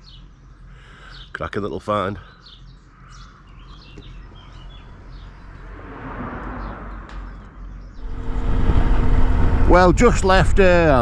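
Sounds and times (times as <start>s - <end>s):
birds chirping: 2.1s - 5.7s
low engine note: 8.0s - 11.0s
wind rumble: 8.0s - 11.0s.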